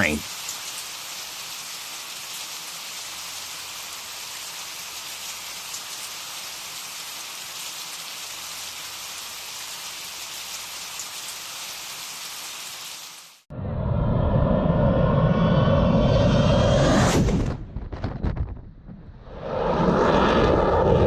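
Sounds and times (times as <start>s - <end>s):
individual raindrops: 0.0s - 13.5s
steady rain hiss: 0.0s - 13.5s.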